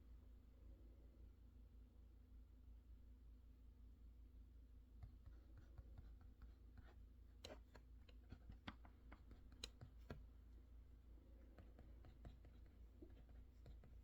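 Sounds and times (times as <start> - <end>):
low steady hum: 0.0 - 14.0
clicks and taps at a desk: 5.0 - 10.4, 11.4 - 14.0.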